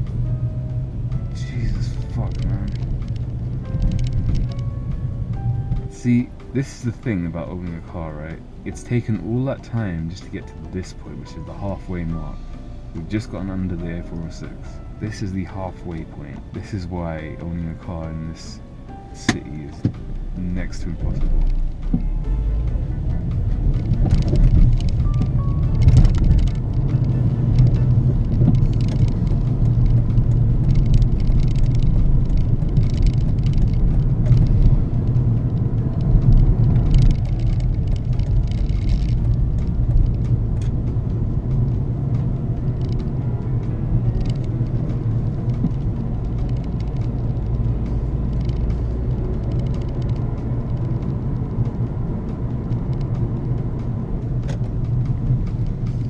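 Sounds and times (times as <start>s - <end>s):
car engine drone: 0.0s - 56.0s
road and tyre noise: 0.0s - 56.0s.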